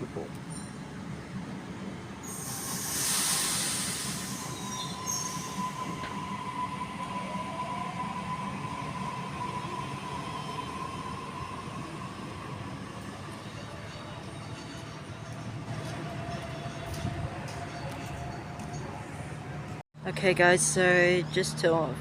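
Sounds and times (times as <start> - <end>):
electric train rumbling: 0.0 - 21.9
air hiss: 2.2 - 5.5.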